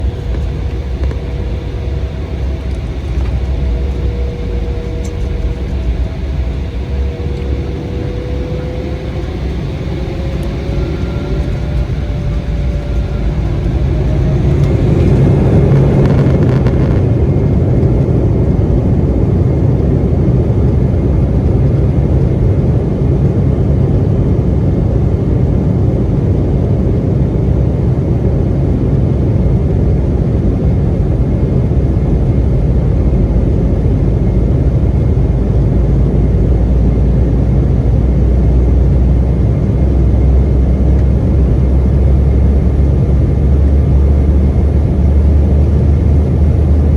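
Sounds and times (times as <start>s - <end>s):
jet engines spooling up: 0.0s - 19.8s
deep rumble: 0.0s - 46.9s.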